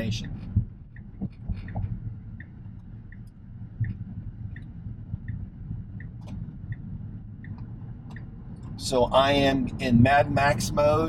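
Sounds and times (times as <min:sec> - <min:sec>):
cabin road rumble: 0:00.0 - 0:11.0
turn signal ticking: 0:00.0 - 0:11.0.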